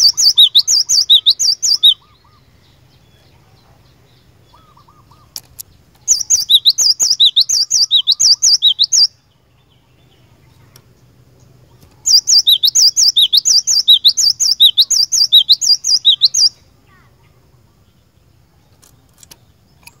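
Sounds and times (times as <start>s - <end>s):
bird singing two-note phrases: 0.0s - 2.5s, 12.1s - 16.6s.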